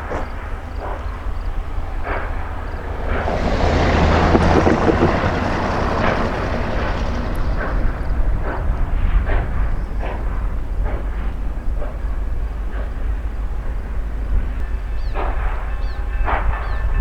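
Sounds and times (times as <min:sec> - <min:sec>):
steam locomotive exhaust chuffing: 0:00.0 - 0:17.0
low rumble: 0:01.1 - 0:10.9.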